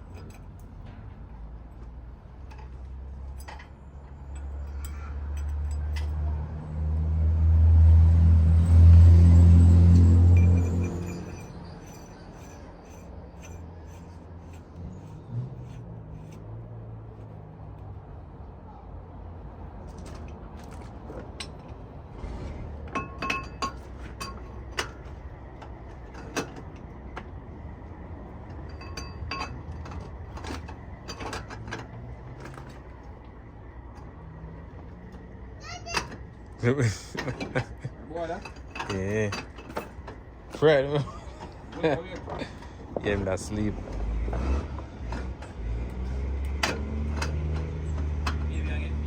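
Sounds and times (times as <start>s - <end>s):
vehicle engine rumbling: 0.0s - 49.0s
light metal clinks: 2.5s - 6.2s
steel tools clinking on metal: 3.3s - 6.2s, 10.0s - 16.4s, 23.0s - 25.0s.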